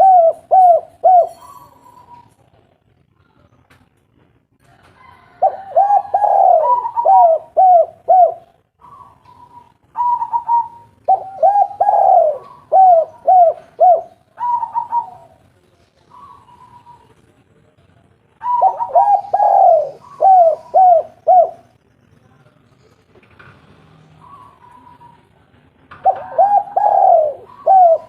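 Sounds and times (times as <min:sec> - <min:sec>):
dove cooing: 0:00.0 - 0:02.3, 0:05.3 - 0:15.4, 0:18.4 - 0:21.7, 0:24.2 - 0:25.3, 0:26.0 - 0:28.0.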